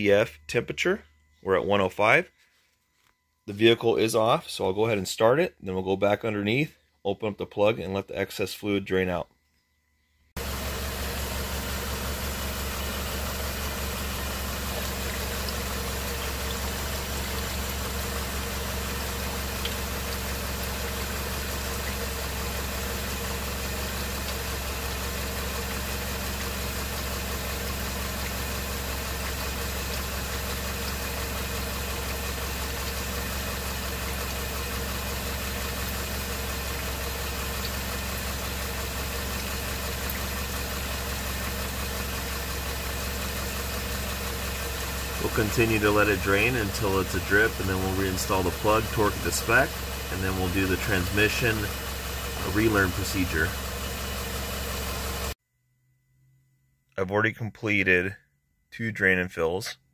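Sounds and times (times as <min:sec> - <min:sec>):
car engine idling: 0:10.4 - 0:55.4.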